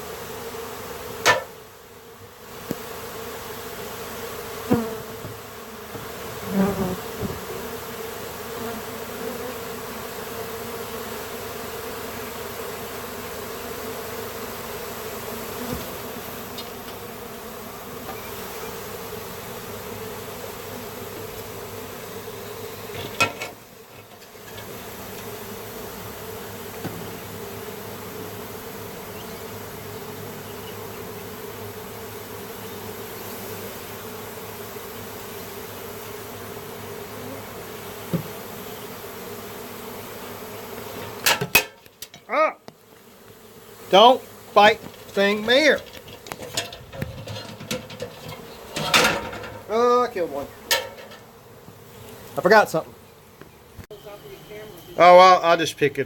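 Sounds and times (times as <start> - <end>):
bees buzzing: 0.0 - 56.0
sharp knocks: 1.2 - 1.6.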